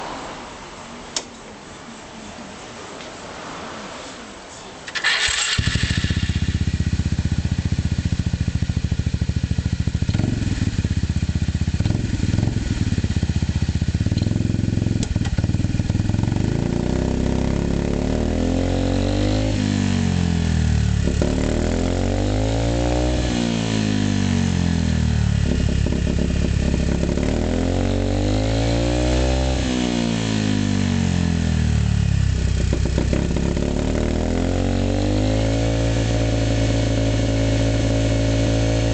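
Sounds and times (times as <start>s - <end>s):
scooter engine starting and idling: 4.9s - 18.4s, 23.1s - 27.5s, 29.6s - 34.3s
scooter engine revving: 4.9s - 38.9s.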